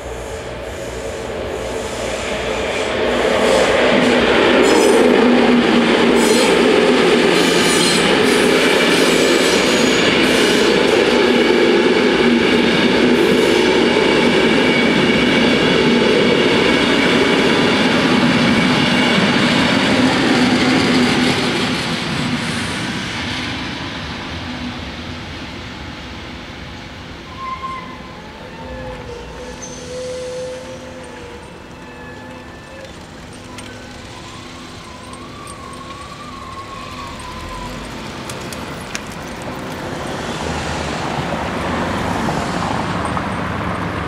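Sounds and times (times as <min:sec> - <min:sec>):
electric train passing: 0:00.0 - 0:44.0
wheels clicking over rail joints: 0:30.4 - 0:40.6.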